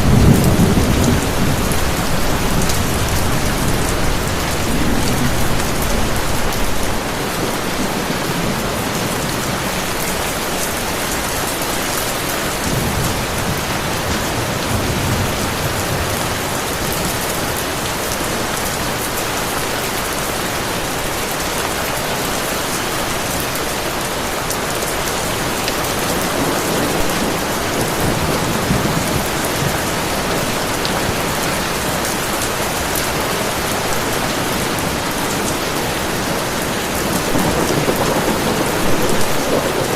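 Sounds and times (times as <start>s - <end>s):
distant thunder rumbling: 0.0s - 11.2s, 35.8s - 39.9s
heavy rain hiss: 0.0s - 39.9s.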